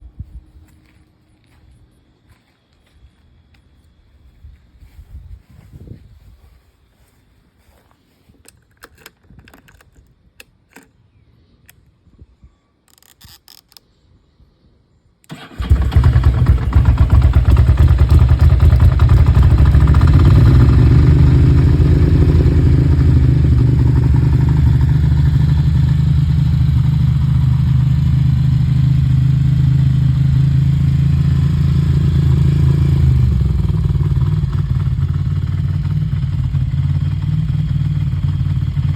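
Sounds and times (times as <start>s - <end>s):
motorcycle engine idling: 15.3s - 38.9s.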